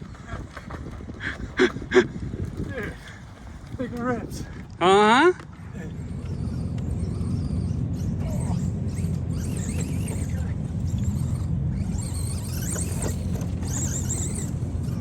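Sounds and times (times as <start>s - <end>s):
electric motor whining: 5.8s - 15.0s.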